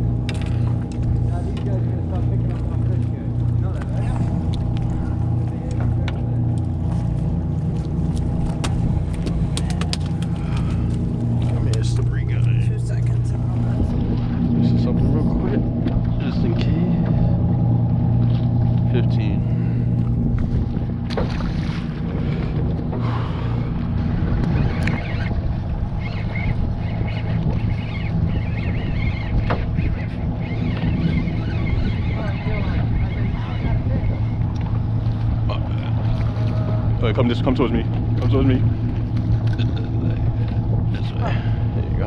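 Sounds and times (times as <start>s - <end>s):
boat motor idling: 0.0s - 42.0s
wind on microphone: 7.8s - 42.0s
sharp knocks on hull: 29.4s - 29.7s.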